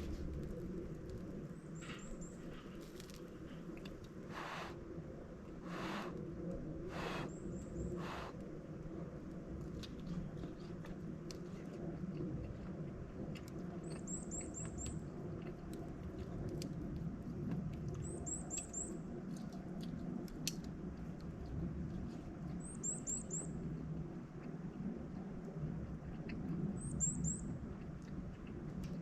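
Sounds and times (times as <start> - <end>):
wood fire crackling: 0.0 - 4.4
small bird chirping: 13.8 - 15.0, 18.0 - 19.0, 26.8 - 27.5.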